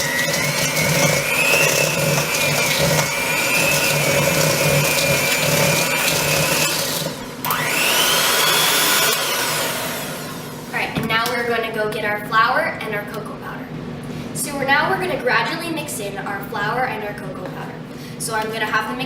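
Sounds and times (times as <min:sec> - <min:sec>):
electric hand mixer whining: 0:00.0 - 0:10.8.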